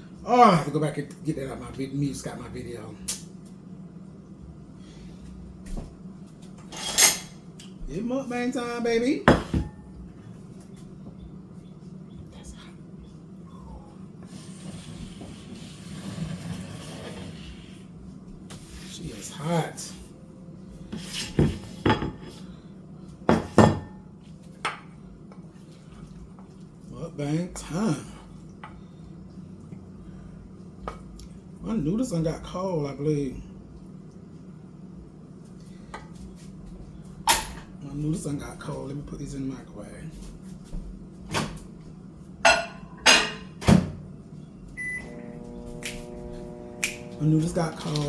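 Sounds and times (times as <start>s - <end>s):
microwave oven humming: 0.0s - 48.0s
dishes and cutlery clattering: 6.6s - 7.4s, 42.5s - 43.6s
microwave keypad beep: 44.8s - 45.2s.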